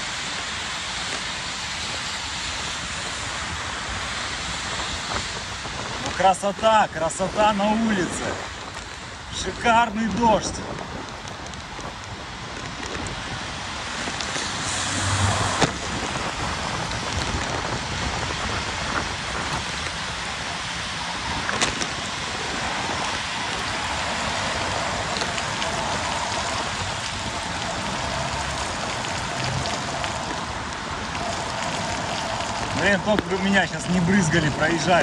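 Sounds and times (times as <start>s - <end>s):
heavy rain hissing: 0.0s - 35.0s.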